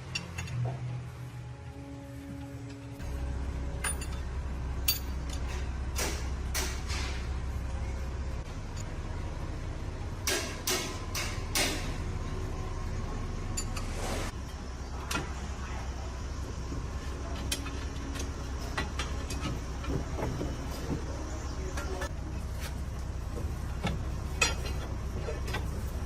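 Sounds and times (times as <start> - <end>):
tools knocking and clanking: 0.0 - 0.9, 4.8 - 7.3, 10.2 - 12.0, 17.3 - 22.1, 23.3 - 25.8
steady low hum: 0.0 - 26.0
short scrape: 13.8 - 14.4.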